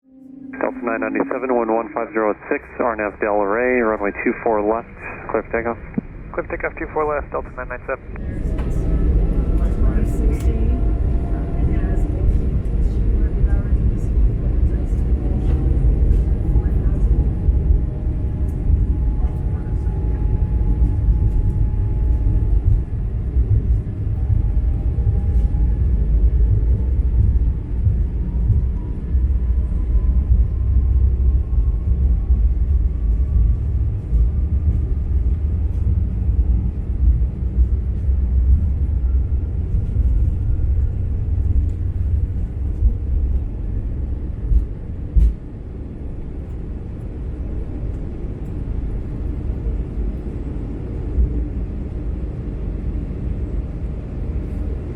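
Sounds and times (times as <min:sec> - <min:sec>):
jet engine whine rising: 0:00.0 - 0:14.1
runway rumble: 0:00.1 - 0:30.6.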